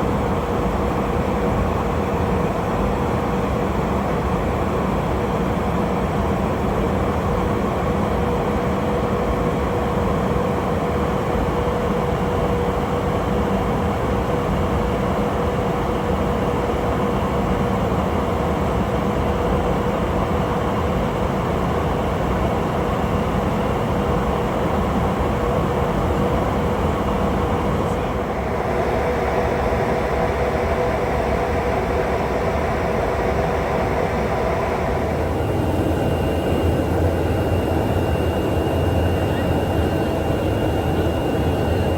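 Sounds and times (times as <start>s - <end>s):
jet engines droning: 18.7s - 41.9s.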